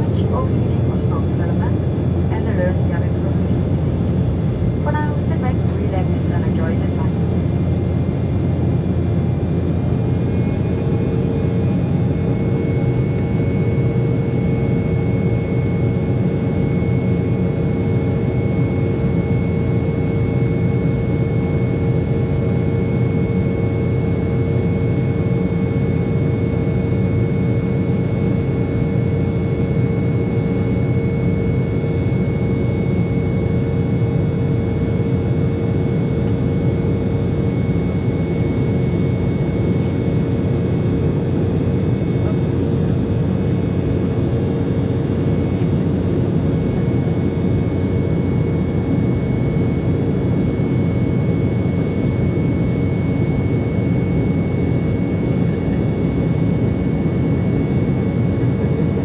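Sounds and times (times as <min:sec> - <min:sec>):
high engine whine: 0:00.0 - 0:59.0
jet engines rumbling: 0:00.0 - 0:59.0
lower engine whine: 0:00.0 - 0:59.0.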